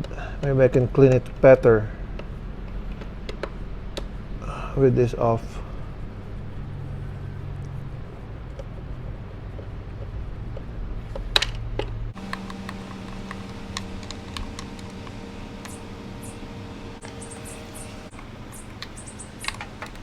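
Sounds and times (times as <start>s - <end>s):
steady low hum: 0.0s - 20.0s
hand tools clicking and tapping: 11.1s - 16.4s, 17.0s - 20.0s.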